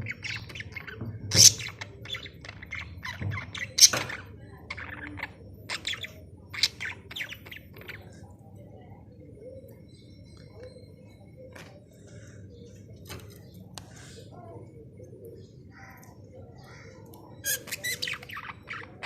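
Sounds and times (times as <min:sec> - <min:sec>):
budgerigars chirping: 0:00.0 - 0:08.1, 0:17.4 - 0:19.0.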